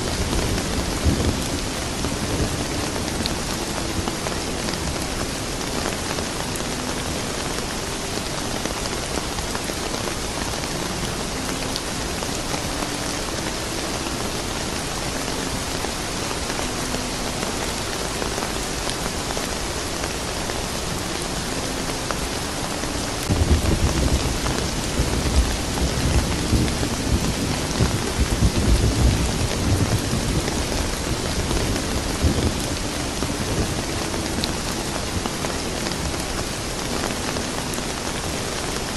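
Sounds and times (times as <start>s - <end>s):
thunder rumbling: 0.0s - 4.2s, 23.3s - 36.2s
rain falling: 0.0s - 38.9s.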